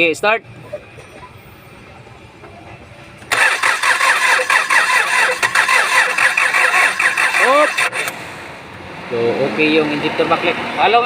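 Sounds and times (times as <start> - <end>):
diesel engine cranking: 3.1 - 8.9.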